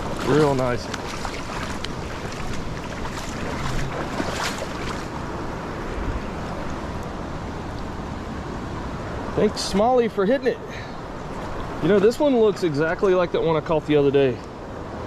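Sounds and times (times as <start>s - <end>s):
water rushing over spillway: 0.0s - 5.2s.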